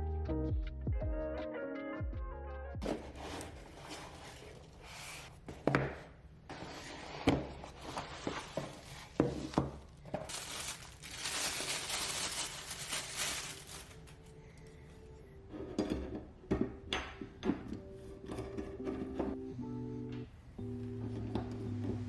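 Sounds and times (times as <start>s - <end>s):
packaging rustling: 7.8s - 14.4s.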